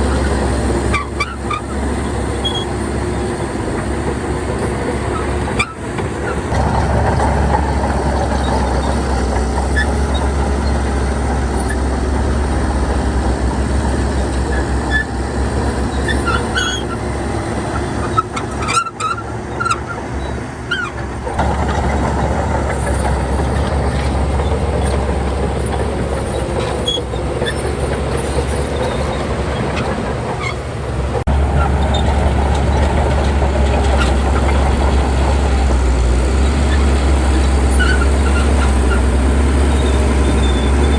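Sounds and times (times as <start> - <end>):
bulldozer diesel engine drone: 0.0 - 40.9
short high squeaks: 16.0 - 17.1, 18.0 - 21.1, 25.6 - 30.7, 37.7 - 40.9.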